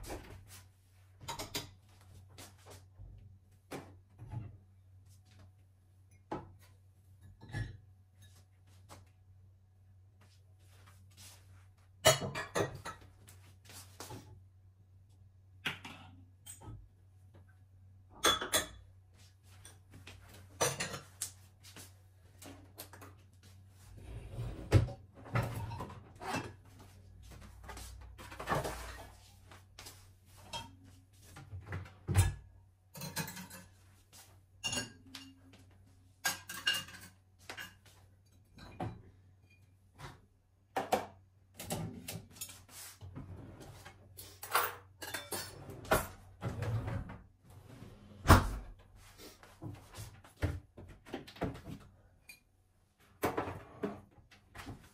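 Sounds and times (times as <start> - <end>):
dishes and cutlery clinking: 1.2 - 1.8, 12.0 - 13.1, 18.2 - 18.9, 20.5 - 21.4, 30.4 - 31.0, 32.1 - 33.9, 34.6 - 35.6, 36.2 - 39.7, 44.4 - 46.2.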